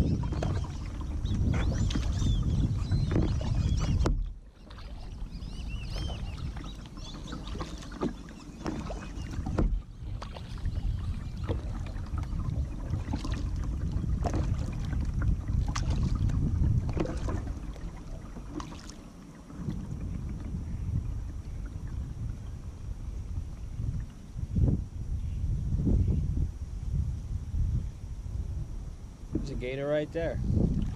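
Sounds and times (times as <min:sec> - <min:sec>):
paddle strokes splashing water: 0:00.0 - 0:24.6
wind rumbling on microphone: 0:00.0 - 0:30.9.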